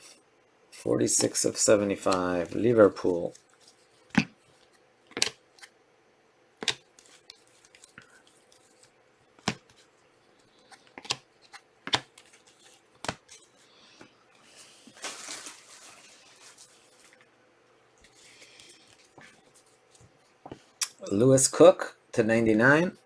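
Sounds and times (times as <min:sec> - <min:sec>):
cards sliding rustle: 0:00.8 - 0:05.7, 0:06.6 - 0:17.3
cards tapped on a table: 0:11.9 - 0:12.1.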